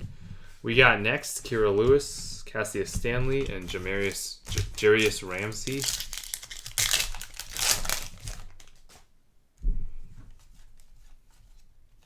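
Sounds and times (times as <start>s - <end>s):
plastic wrapper crinkling and tearing: 3.6s - 9.0s.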